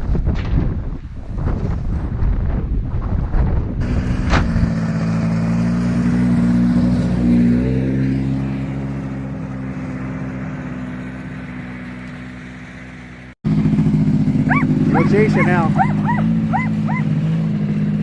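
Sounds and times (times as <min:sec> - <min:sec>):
wind buffeting microphone: 0:00.0 - 0:04.8
snowmobile engine running: 0:03.8 - 0:18.0.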